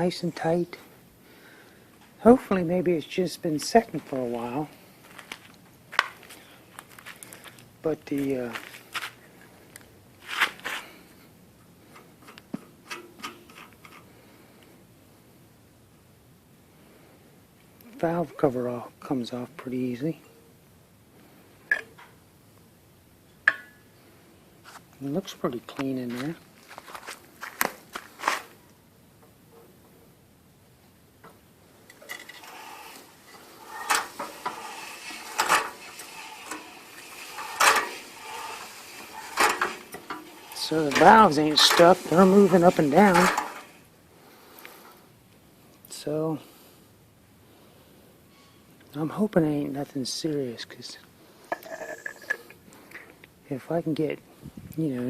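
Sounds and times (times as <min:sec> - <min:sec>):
light clicks and scraping: 0:03.6 - 0:11.0, 0:11.8 - 0:14.7, 0:31.2 - 0:43.8, 0:51.0 - 0:53.4
valve gear metallic clacks: 0:31.9 - 0:43.8.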